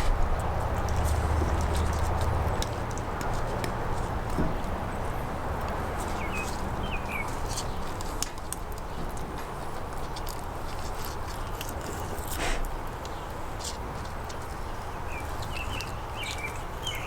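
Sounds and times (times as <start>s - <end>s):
knife clicking and scraping on bones: 9.9s - 12.4s.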